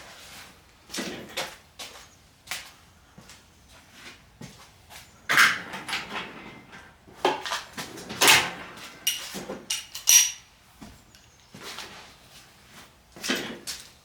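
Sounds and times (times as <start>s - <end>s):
metal tools clinking: 8.3s - 11.6s.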